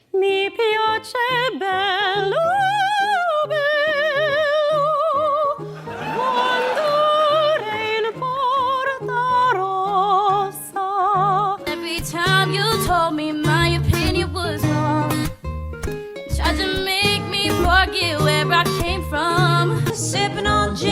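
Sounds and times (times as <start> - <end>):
instrumental accompaniment with bass line: 12.2 - 20.9.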